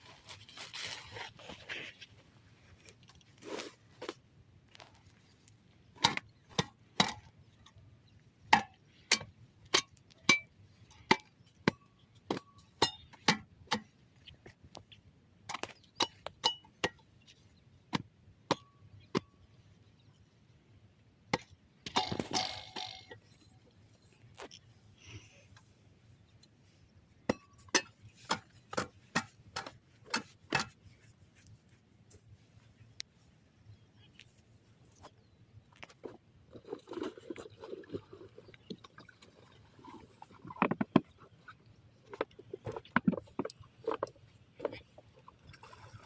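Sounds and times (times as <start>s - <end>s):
scraping rustle: 0.0s - 3.8s.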